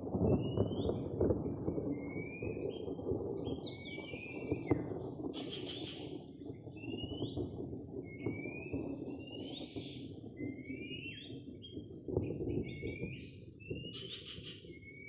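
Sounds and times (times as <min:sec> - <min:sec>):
bird whistled call: 0:05.4 - 0:06.1, 0:08.0 - 0:15.0.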